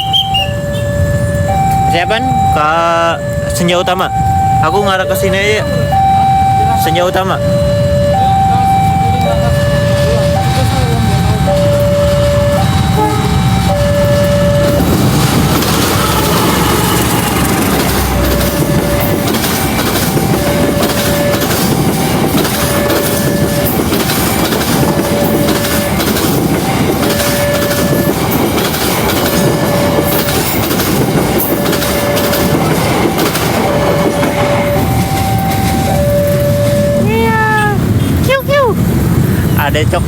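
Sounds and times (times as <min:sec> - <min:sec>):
two-tone electronic warning signal: 0:00.0 - 0:38.8
train wheels clattering: 0:07.2 - 0:37.1.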